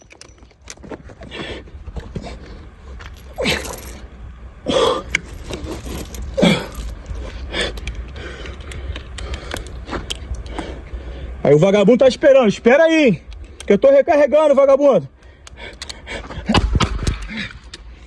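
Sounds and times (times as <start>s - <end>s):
revolver and cartridges jangling: 0.0s - 0.9s, 3.0s - 4.2s, 5.0s - 10.6s.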